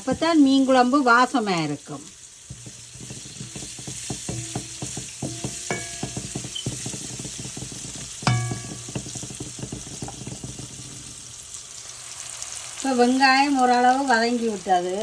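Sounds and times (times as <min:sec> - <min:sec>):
onions sizzling in oil: 0:00.0 - 0:15.0
metal spoon scraping a pan: 0:02.4 - 0:11.2
ringing clank: 0:04.3 - 0:06.9, 0:08.2 - 0:09.2.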